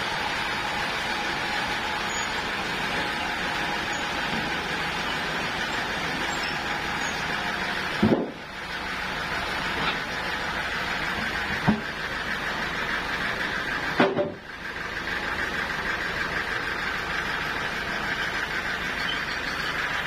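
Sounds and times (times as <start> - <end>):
sawmill running: 0.0 - 20.0.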